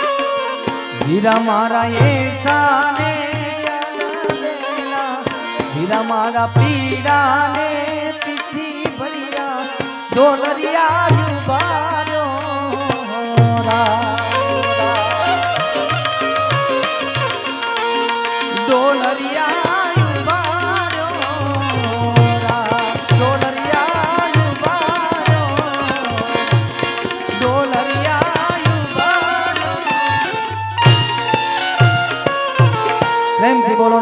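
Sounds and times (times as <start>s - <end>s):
tabla rhythm: 0.0s - 34.0s
wavering instrumental melody: 0.0s - 34.0s.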